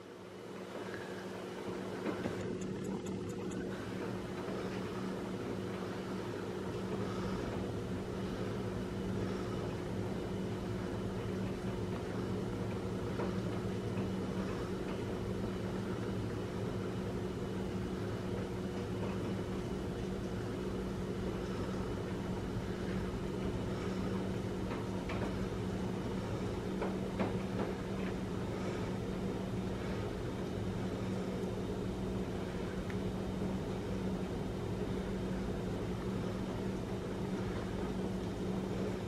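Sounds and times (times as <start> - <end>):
low hum: 0.0 - 39.0.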